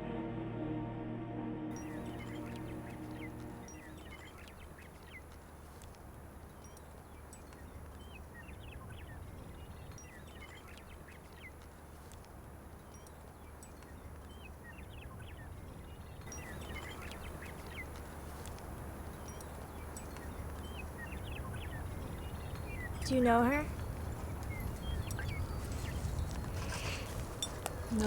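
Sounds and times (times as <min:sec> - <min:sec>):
steady low hum: 0:00.0 - 0:04.8
birds chirping: 0:01.7 - 0:28.0.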